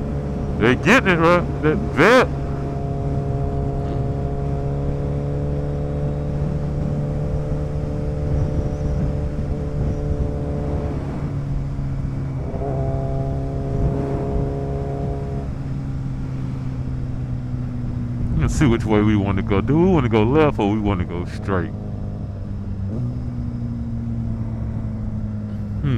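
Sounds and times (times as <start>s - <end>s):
road noise: 0.0s - 25.9s
wind noise: 7.6s - 12.5s.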